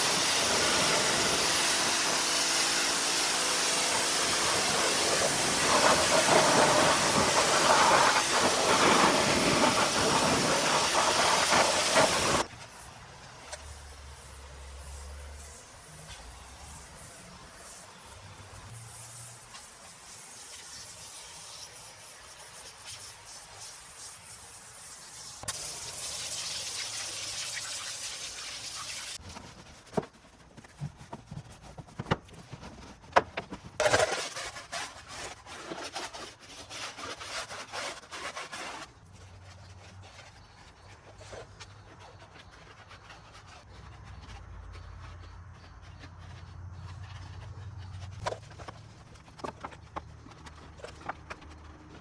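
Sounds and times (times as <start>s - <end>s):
hissing water spray: 0.0s - 29.2s.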